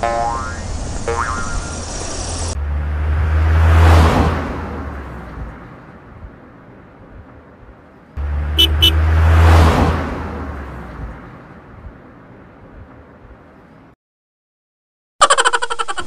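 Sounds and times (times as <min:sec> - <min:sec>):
low engine hum: 0:00.0 - 0:13.9
car whoosh: 0:00.7 - 0:05.8, 0:08.2 - 0:11.9.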